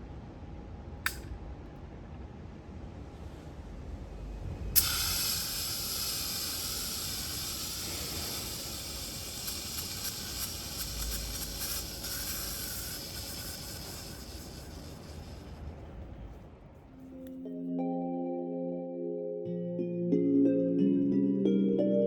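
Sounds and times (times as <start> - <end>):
aerosol spray hissing: 4.8 - 16.3.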